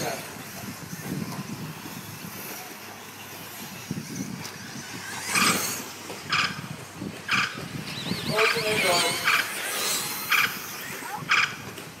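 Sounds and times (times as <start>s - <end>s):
rc truck motor whine: 0.0s - 12.0s
high-pitched squeals: 3.8s - 11.7s.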